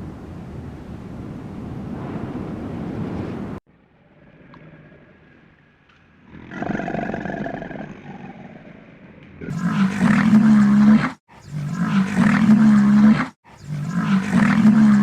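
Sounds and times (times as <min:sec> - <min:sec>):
wind-like noise: 0:00.0 - 0:03.6
large animal calling: 0:06.2 - 0:15.0.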